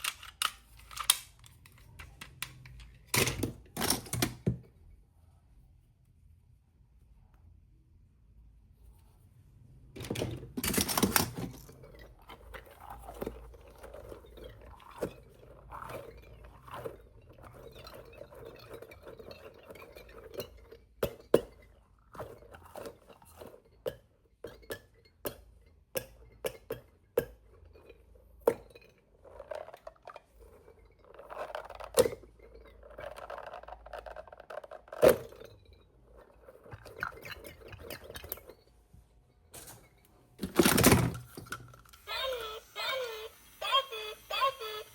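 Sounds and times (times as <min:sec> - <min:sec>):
plastic toy pieces clicking: 0:00.0 - 0:04.4, 0:31.2 - 0:35.3.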